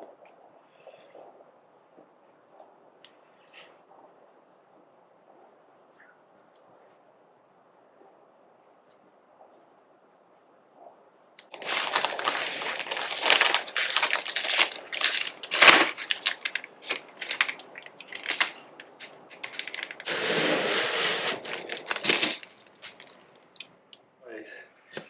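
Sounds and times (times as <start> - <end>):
plastic crackling and rustling: 11.4 - 23.8.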